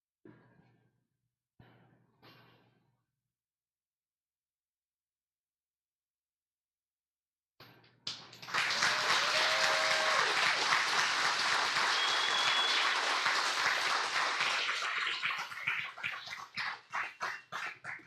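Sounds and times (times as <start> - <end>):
congregation applauding: 8.4 - 18.0.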